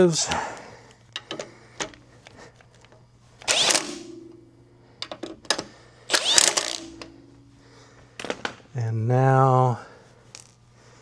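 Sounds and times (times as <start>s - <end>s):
tool bursts on metal: 3.4s - 5.2s, 6.1s - 7.6s.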